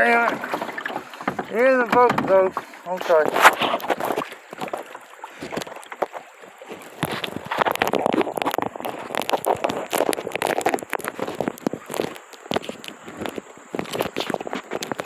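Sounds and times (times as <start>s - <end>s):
water splashing around kayak: 0.0s - 15.0s
sharp clicks and knocks: 0.2s - 4.8s.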